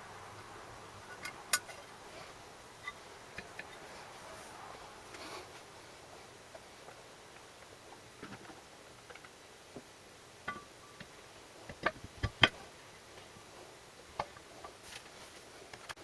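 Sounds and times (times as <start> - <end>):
metal parts and tools clinking: 1.0 - 1.9.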